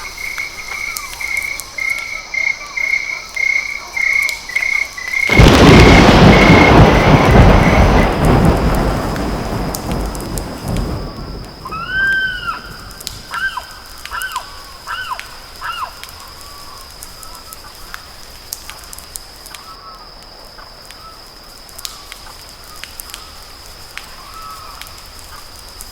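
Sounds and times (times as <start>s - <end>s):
low rumble: 5.3s - 11.9s
faint clicks: 8.2s - 21.1s, 21.7s - 25.9s
bird whistled calls: 11.6s - 17.5s.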